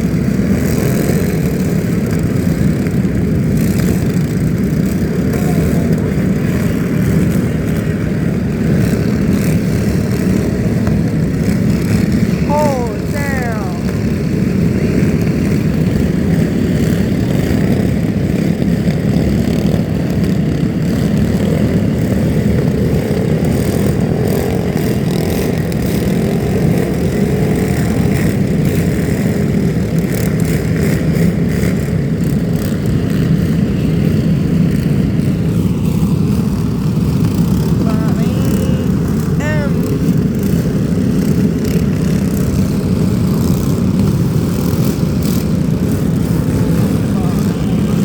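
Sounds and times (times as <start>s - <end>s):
vehicle engine and road rumble: 0.0s - 12.8s, 13.8s - 48.0s.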